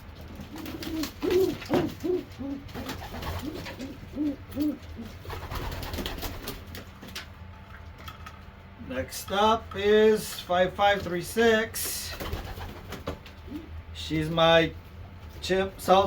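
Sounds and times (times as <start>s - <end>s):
pigeons cooing: 0.0s - 6.5s, 12.2s - 13.9s.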